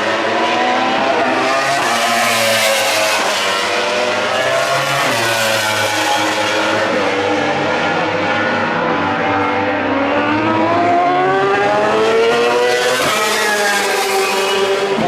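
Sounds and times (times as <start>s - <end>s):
racing motorcycle engine accelerating: 7.7s - 13.2s.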